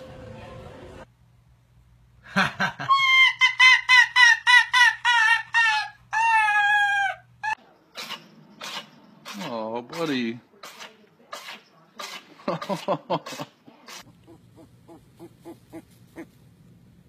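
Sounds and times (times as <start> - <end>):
dog yelping: 2.9 - 7.6, 14.2 - 16.4.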